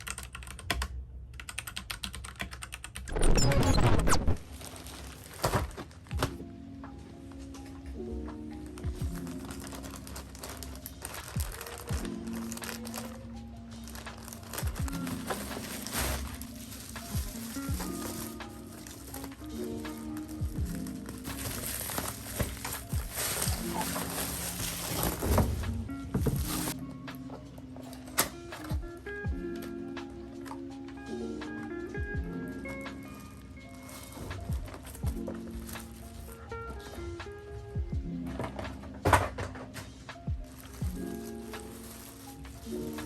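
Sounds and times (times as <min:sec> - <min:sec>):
mechanical keyboard typing: 0:00.0 - 0:04.3
music: 0:00.0 - 0:43.0.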